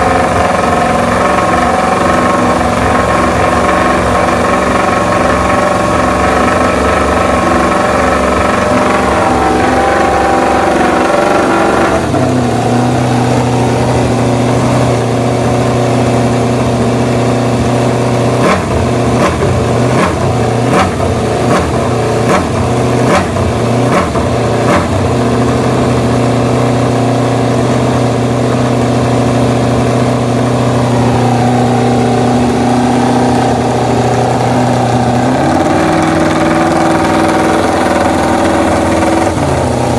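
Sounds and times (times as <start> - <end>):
sharp throttle blips: 0.0 - 16.8, 28.9 - 39.9
motorcycle engine idling: 0.0 - 39.9.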